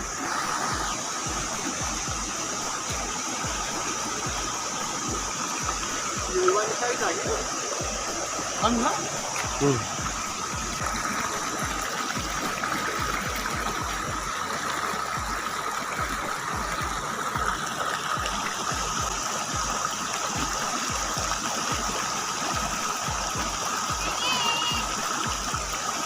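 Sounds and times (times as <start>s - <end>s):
river water flowing: 0.0s - 26.0s
low thumps: 7.2s - 11.0s.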